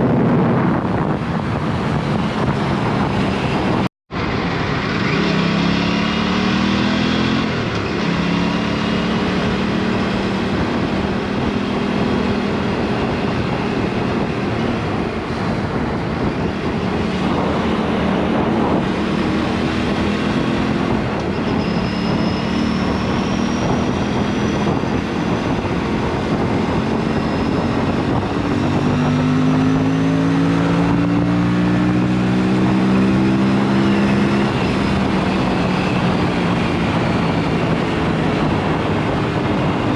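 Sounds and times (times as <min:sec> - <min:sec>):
motorcycle engine revving: 0:00.0 - 0:39.9
wind on microphone: 0:00.0 - 0:39.9.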